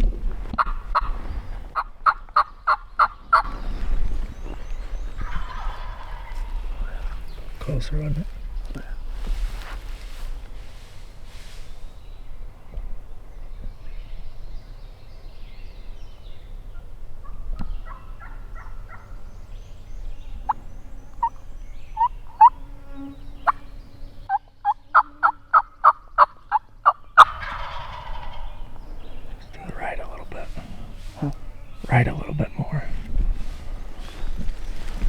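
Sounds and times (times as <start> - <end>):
turkeys yelping: 5.1 - 7.7, 17.2 - 19.2, 25.0 - 35.0
turkey gobble: 5.2 - 7.3, 24.6 - 31.4.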